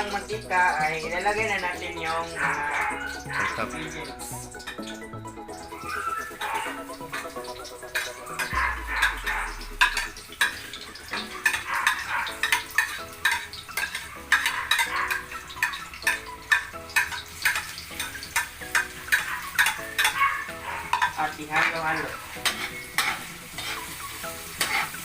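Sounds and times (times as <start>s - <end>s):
food sizzling in oil: 0.0s - 25.0s
low rumble: 8.5s - 10.4s.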